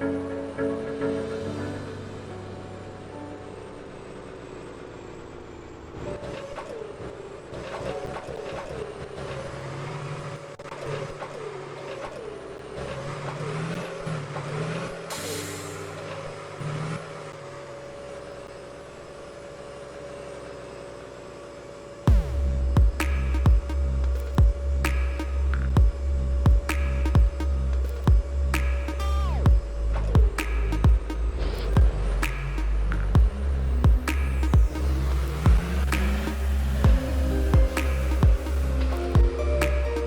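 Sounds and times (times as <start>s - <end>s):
rising and falling whines: 22.0s - 40.0s
garbage truck engine revving: 22.1s - 40.0s.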